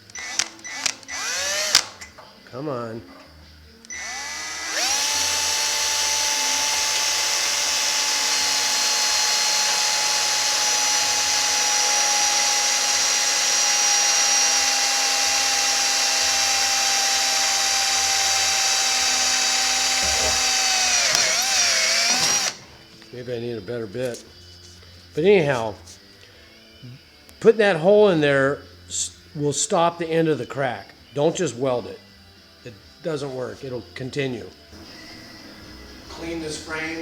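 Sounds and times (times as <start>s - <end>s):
power drill boring into steel: 0.0s - 2.1s, 3.9s - 22.6s.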